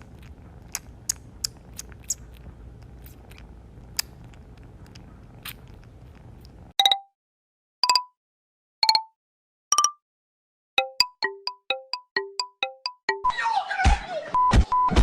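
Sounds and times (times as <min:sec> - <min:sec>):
crunchy chewing: 0:00.0 - 0:06.7.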